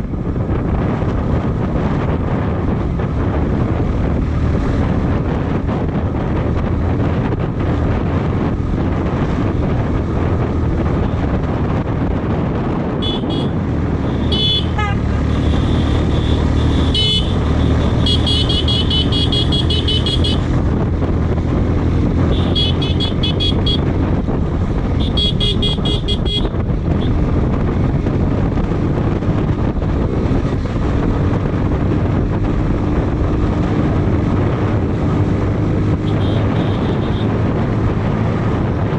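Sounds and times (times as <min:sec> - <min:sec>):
motorcycle engine: 0:00.0 - 0:38.9
wind noise on microphone: 0:00.0 - 0:38.9
vehicle horn honking: 0:13.0 - 0:20.5, 0:22.3 - 0:23.9, 0:25.0 - 0:26.6, 0:36.0 - 0:37.3.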